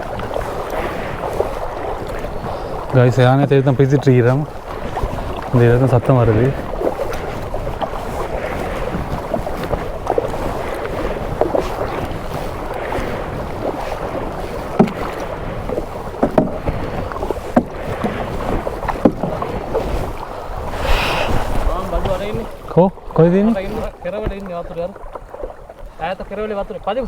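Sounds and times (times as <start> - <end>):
paddle splashing in water: 0.0 - 27.0
wind buffeting microphone: 0.0 - 27.0
sharp splashes or knocks: 14.6 - 22.7.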